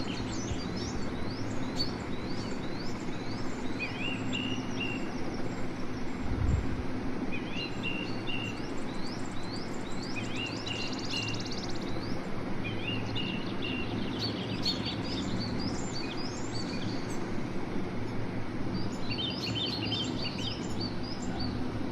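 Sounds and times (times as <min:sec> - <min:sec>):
bird chirping: 0:00.0 - 0:05.4, 0:07.4 - 0:17.2, 0:18.8 - 0:21.6
steady low hum: 0:00.0 - 0:21.9.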